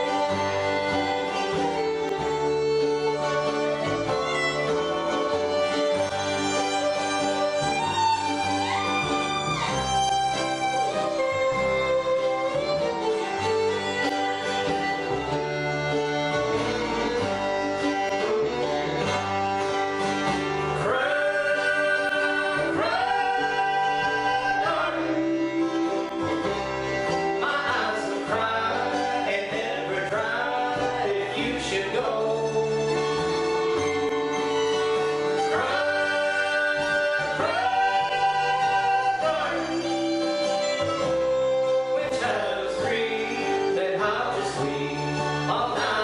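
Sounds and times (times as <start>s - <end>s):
bluegrass band playing: 0.0s - 46.0s
person singing: 20.6s - 33.2s, 35.3s - 46.0s.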